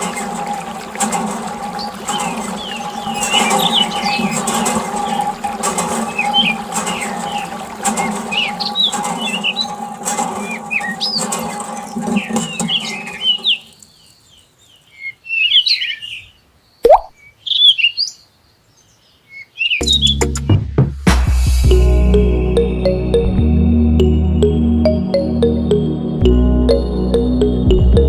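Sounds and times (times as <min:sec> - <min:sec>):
small birds chirping: 0:10.5 - 0:20.2.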